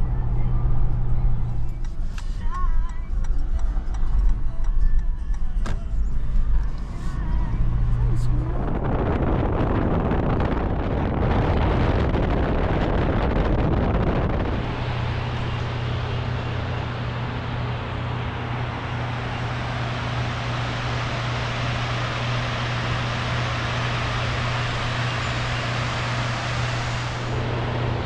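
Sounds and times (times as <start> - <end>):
vehicle cabin road and engine drone: 0.0 - 28.0
wind buffeting: 7.2 - 16.8.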